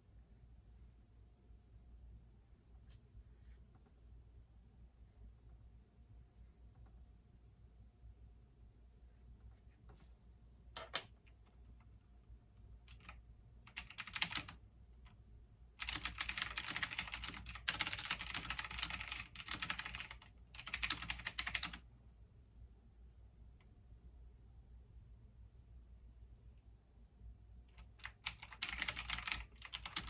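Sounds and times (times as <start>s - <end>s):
typing on computer keyboard: 12.9s - 14.6s, 15.8s - 21.8s, 27.7s - 30.0s.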